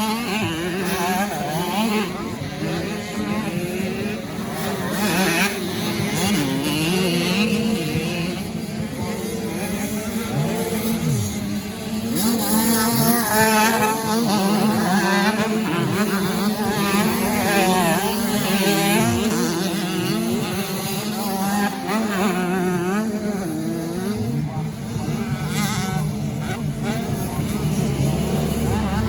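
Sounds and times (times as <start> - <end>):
motocross bike engines racing: 0.0 - 29.0.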